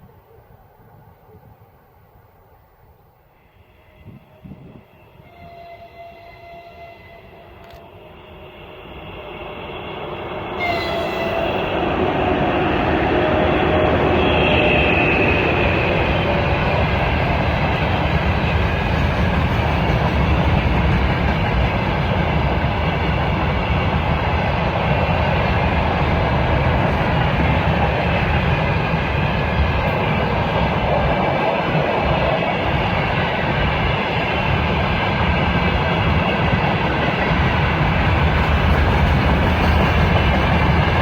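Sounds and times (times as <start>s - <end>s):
freight train rumbling past: 0.0s - 41.0s
train wheel squeal: 3.5s - 11.8s.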